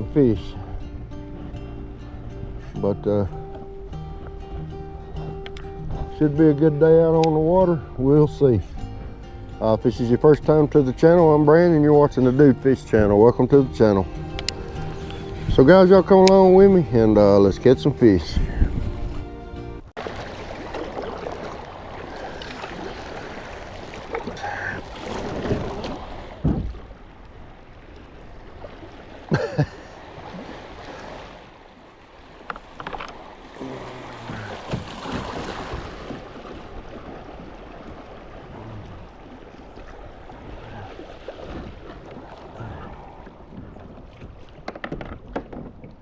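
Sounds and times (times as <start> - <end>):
water rippling and splashing: 0.0 - 46.0
wind on microphone: 12.9 - 19.9
knocks against boat hull: 26.4 - 26.8.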